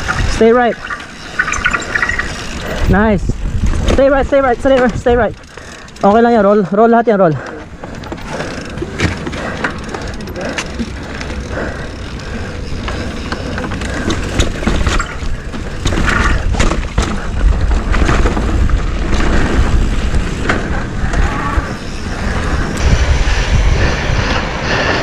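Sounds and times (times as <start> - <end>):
wind buffeting microphone: 0.0 - 5.6, 7.7 - 25.0
bike chain and frame clacks: 0.0 - 22.8.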